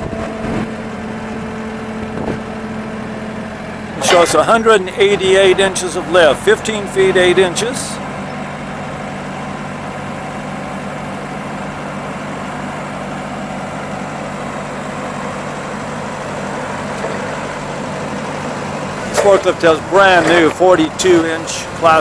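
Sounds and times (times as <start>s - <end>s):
forklift engine running: 0.0s - 22.0s
hydraulics raising mast: 3.9s - 9.6s, 16.7s - 22.0s.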